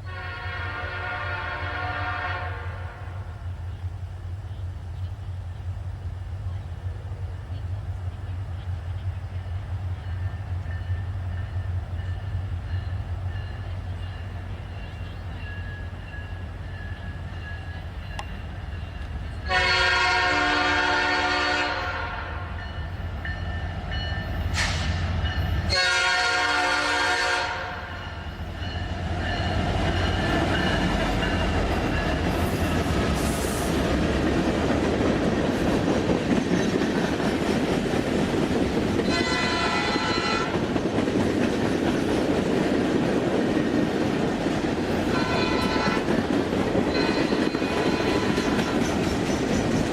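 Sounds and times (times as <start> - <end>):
locomotive air horn blasts: 0.0 - 3.3, 19.4 - 22.6, 25.7 - 28.2, 39.0 - 40.7, 45.1 - 46.2, 46.9 - 48.9
train wheels rumbling on rails: 0.0 - 49.9.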